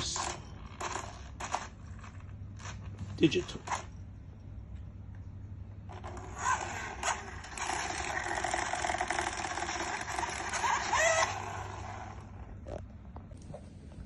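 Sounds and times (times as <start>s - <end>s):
toy car motor whirring: 0.0s - 2.7s, 5.9s - 12.5s.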